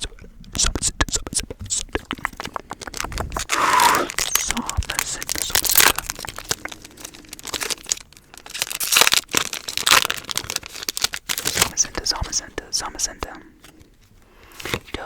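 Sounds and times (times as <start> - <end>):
cards clicking: 1.7 - 6.9
foil wrapper crinkling: 1.9 - 15.0.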